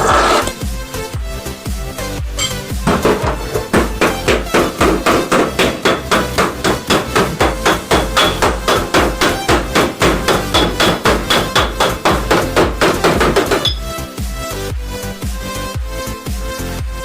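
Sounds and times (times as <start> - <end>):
rapid hammering on sheet metal: 2.8 - 13.8.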